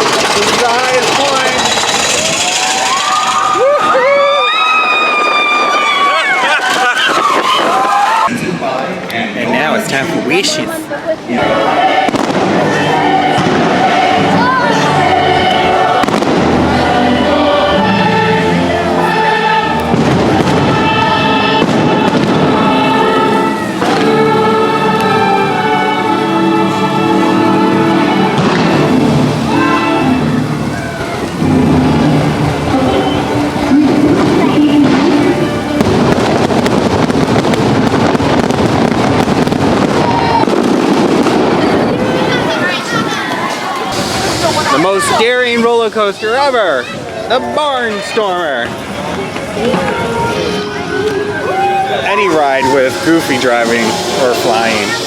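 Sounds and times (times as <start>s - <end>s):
fireworks bursting: 0.0s - 8.3s, 11.4s - 47.2s, 48.6s - 55.0s
orchestral music with choir: 11.2s - 36.6s.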